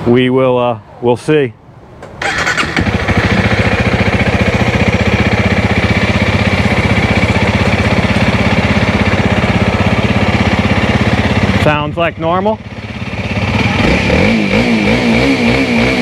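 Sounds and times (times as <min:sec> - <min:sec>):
motorcycle engine idling: 0:02.2 - 0:14.5.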